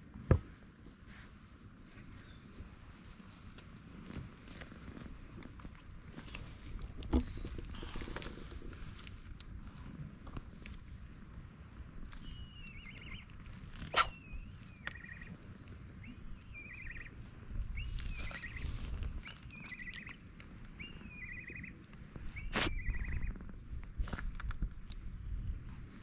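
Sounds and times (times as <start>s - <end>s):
small bird singing: 2.1s - 2.8s, 12.1s - 23.5s.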